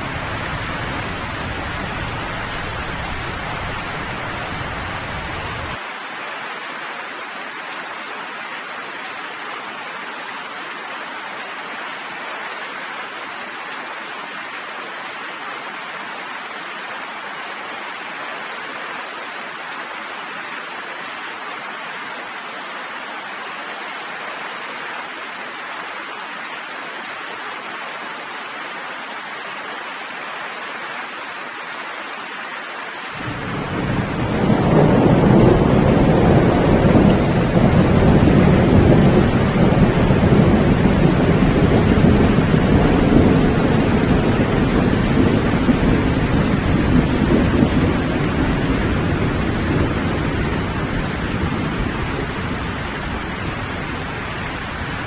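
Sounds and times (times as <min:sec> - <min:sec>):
steady rain: 0:00.0 - 0:55.0
rolling thunder rumble: 0:33.2 - 0:55.0.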